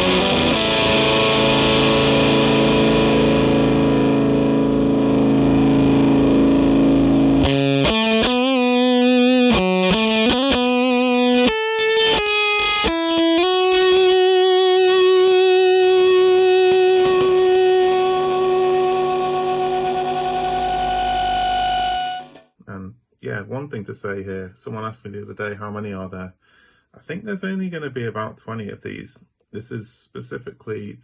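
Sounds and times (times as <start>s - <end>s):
distorted electric guitar: 0.0s - 22.5s.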